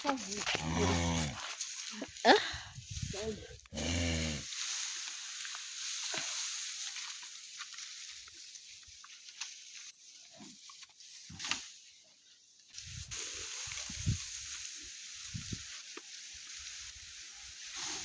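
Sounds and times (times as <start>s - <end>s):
food sizzling in a pot: 12.8s - 18.0s.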